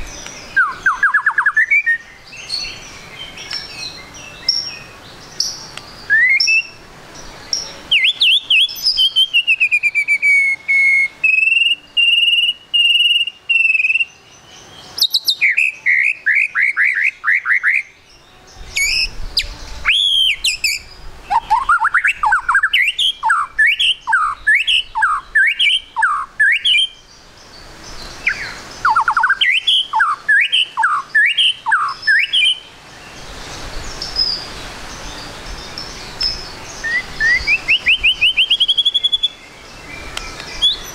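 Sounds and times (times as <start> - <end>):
bird singing whistled phrases: 0.0 - 6.8, 7.4 - 27.1, 28.2 - 32.7, 34.0 - 40.9
steady background hiss: 0.0 - 40.9.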